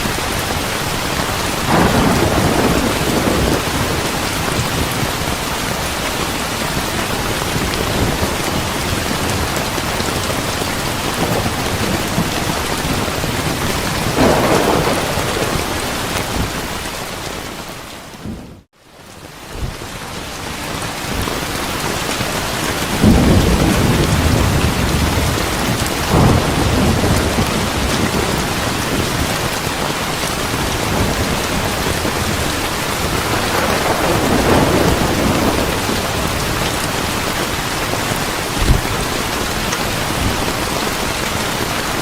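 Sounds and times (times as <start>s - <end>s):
steady rain hissing: 0.0s - 42.0s
rolling thunder: 1.5s - 16.9s, 22.8s - 29.8s, 30.4s - 40.6s.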